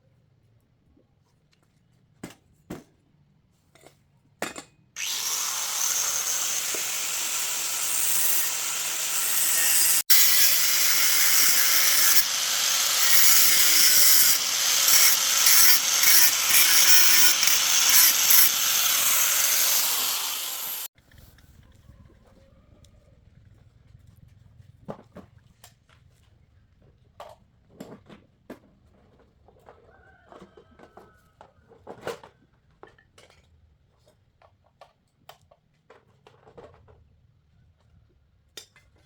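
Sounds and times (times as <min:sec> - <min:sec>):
tool rubbing abrasively on surface: 0:05.0 - 0:20.9.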